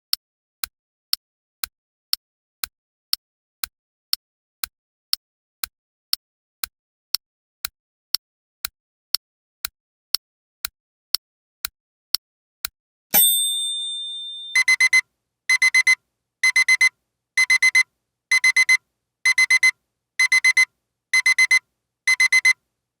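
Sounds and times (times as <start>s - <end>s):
single ringing ding: 13.1s - 14.7s
digital alarm clock beeping: 14.0s - 22.6s
timer ticking: 14.3s - 22.6s.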